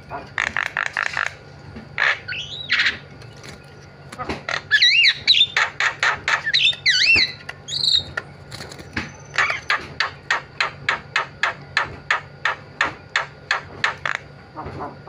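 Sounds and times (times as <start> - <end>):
myna calling: 0.0 - 3.1, 4.2 - 8.2.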